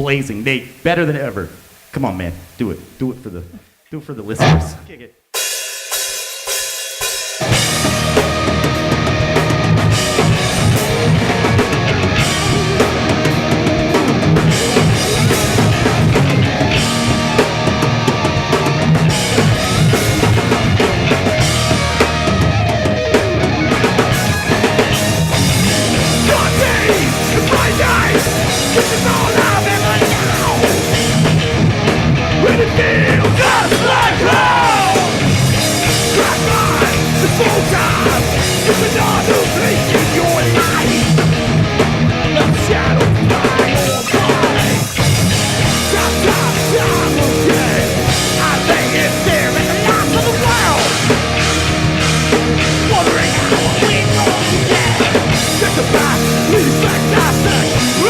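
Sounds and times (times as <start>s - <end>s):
lead guitar solo: 4.4s - 5.0s, 7.4s - 44.0s
punk band playing live: 4.4s - 58.0s.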